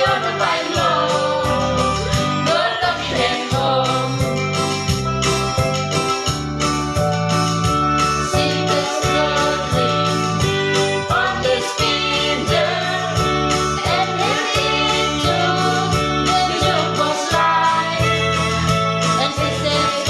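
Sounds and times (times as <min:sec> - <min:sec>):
instrumental backing with beat: 0:00.0 - 0:20.0
person singing: 0:08.4 - 0:10.4, 0:13.8 - 0:20.0.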